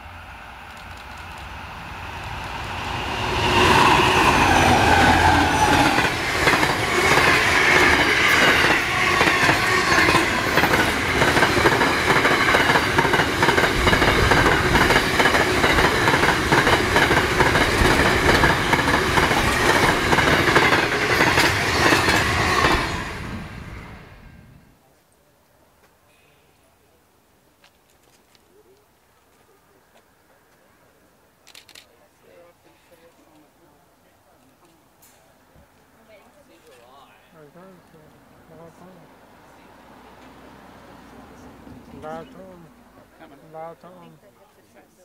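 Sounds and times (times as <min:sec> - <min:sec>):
locomotive engines: 0:00.0 - 0:24.1
wheels clickety-clack on rails: 0:00.6 - 0:22.9.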